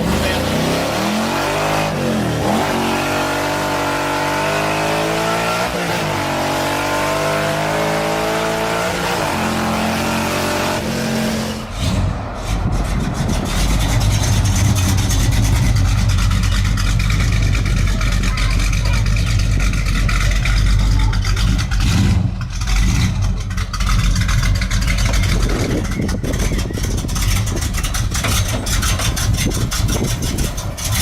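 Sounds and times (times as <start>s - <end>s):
car engine revving: 0.0s - 31.0s
low rough pulsing engine rumble: 10.8s - 31.0s.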